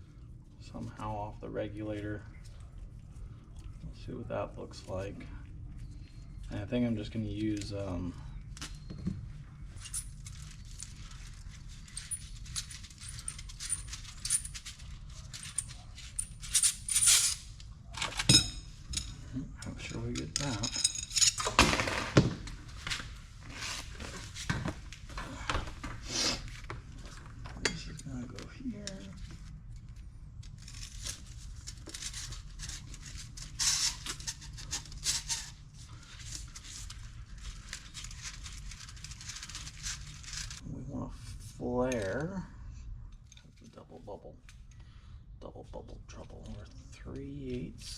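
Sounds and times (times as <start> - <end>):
steady low hum: 0.0 - 47.9
metal parts clinking: 9.8 - 21.6.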